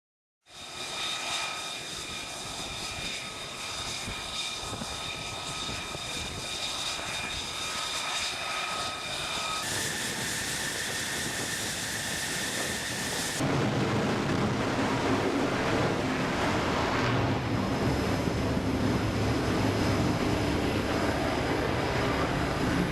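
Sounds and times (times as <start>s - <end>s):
jet engine roar: 0.5s - 22.9s
high whining tones: 0.6s - 13.4s
deep rumble: 9.9s - 22.9s.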